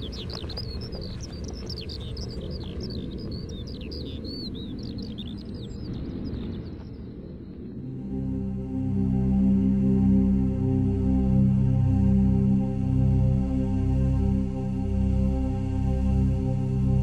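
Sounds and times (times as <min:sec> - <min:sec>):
small birds chirping: 0:00.0 - 0:07.9
low steady rumble: 0:07.8 - 0:17.0.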